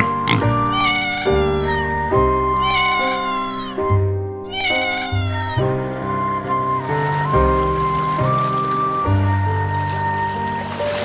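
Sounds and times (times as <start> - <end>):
cat meowing: 0.0 - 6.3
background music with sustained notes: 0.0 - 11.0.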